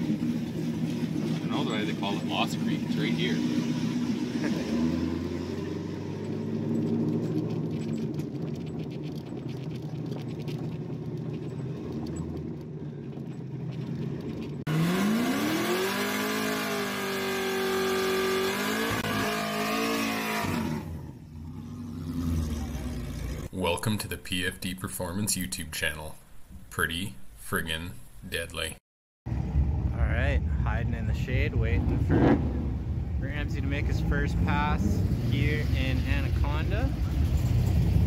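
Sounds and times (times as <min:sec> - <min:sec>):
car engine and road drone: 0:00.0 - 0:24.5, 0:29.3 - 0:38.0
car engine revving high: 0:01.5 - 0:07.5, 0:14.7 - 0:23.5, 0:31.8 - 0:36.3.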